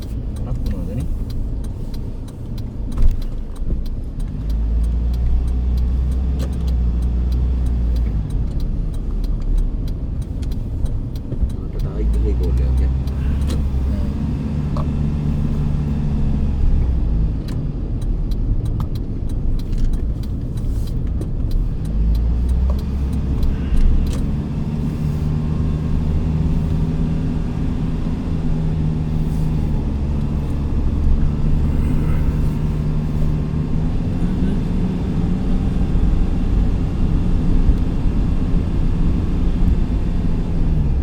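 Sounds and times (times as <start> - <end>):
light clicks: 0.0 - 15.9
vehicle engine rumbling: 0.0 - 41.0.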